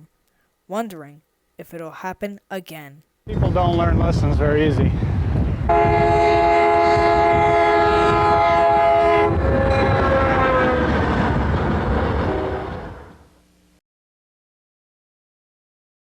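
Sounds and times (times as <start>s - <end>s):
train rumble: 3.3s - 13.3s
locomotive horn blast: 5.7s - 11.0s, 12.0s - 13.2s.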